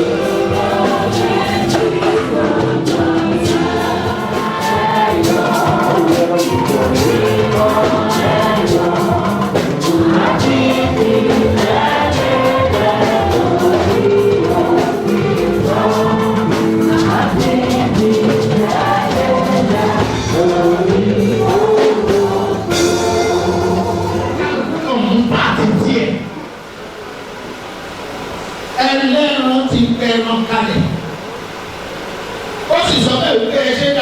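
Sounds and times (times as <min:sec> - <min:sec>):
instrumental backing: 0:00.0 - 0:25.4
percussion beat: 0:00.0 - 0:25.5
choir singing gospel: 0:00.0 - 0:27.3.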